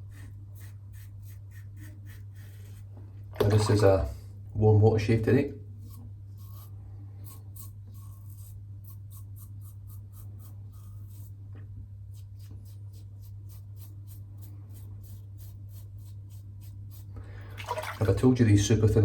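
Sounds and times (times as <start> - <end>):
razor scraping stubble: 0.0 - 2.9, 5.8 - 17.2.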